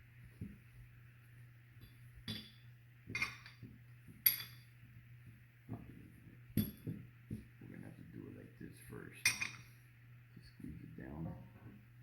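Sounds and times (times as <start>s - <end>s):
steady low hum: 0.0s - 12.0s
metallic clinks and knocks: 1.8s - 4.8s, 6.5s - 7.1s, 9.2s - 9.7s.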